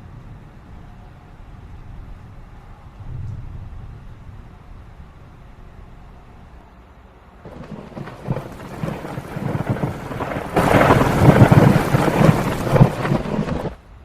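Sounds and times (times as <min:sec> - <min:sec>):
heavy rain pelting down: 0:07.3 - 0:14.0.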